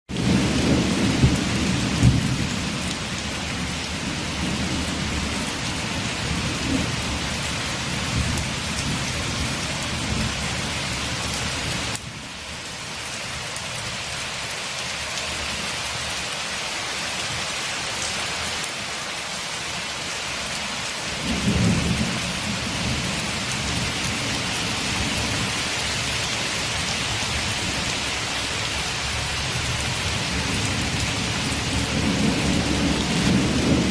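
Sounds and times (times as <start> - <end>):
thunder rumbling: 0.1 - 12.2, 21.2 - 33.9
rain pattering on a window: 0.1 - 33.9.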